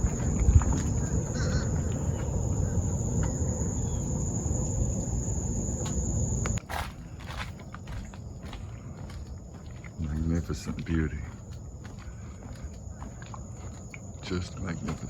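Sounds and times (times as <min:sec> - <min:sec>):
low rumbling noise: 0:00.0 - 0:06.6
high-pitched insect trill: 0:00.0 - 0:15.0.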